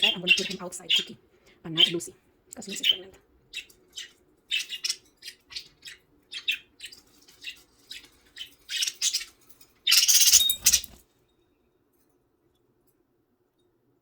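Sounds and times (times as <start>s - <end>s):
budgies chirping: 0.0s - 11.0s.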